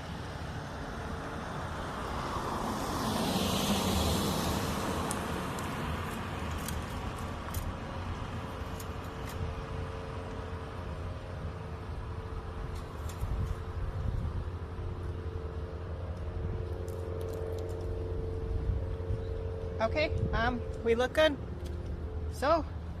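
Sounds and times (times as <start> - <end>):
vehicle passing by: 0.0 - 8.6.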